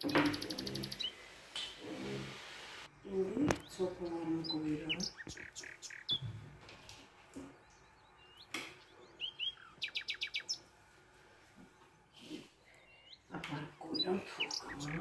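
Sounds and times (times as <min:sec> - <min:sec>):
small bird chirping: 0:00.0 - 0:01.8, 0:02.9 - 0:06.4, 0:07.4 - 0:10.7, 0:12.2 - 0:15.0.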